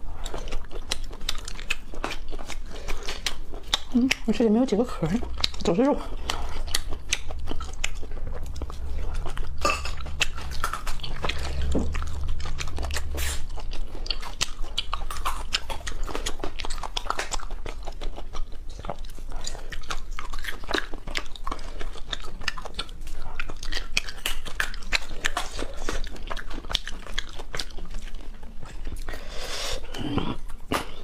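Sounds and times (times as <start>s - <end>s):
low hum: 0.0s - 23.9s
person chewing food: 0.0s - 31.0s.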